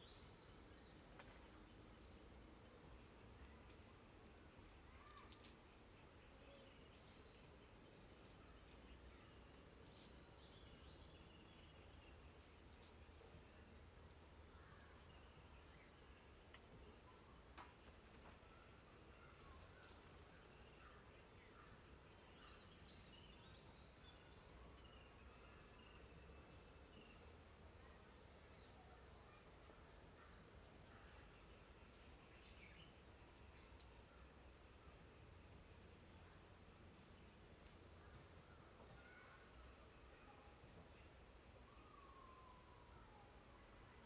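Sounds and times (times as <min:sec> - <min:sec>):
insect chorus: 0:00.0 - 0:44.0
faint chirps: 0:04.8 - 0:35.1, 0:37.1 - 0:44.0.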